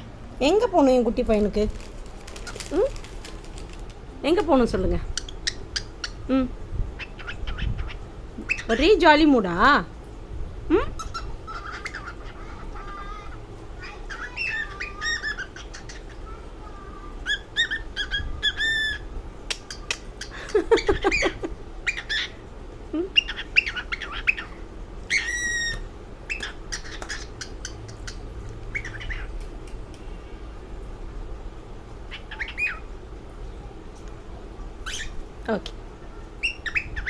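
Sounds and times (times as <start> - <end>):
cockatiel chirping and squawking: 7.0 - 8.8, 11.0 - 16.2, 17.2 - 19.0, 20.9 - 22.4, 23.2 - 29.3, 32.1 - 32.8, 34.8 - 35.2, 36.4 - 37.0.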